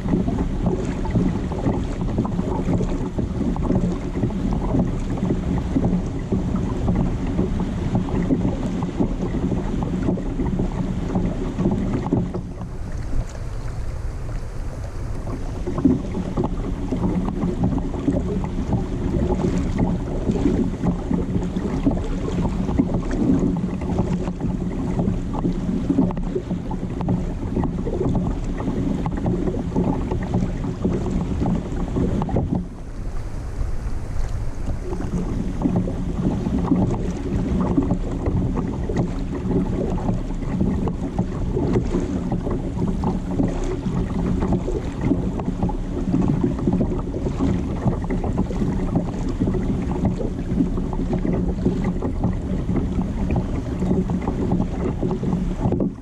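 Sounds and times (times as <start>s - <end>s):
water noise: 0.0s - 56.0s
wind buffeting microphone: 0.0s - 56.0s
low hum: 11.5s - 24.7s, 27.3s - 40.5s.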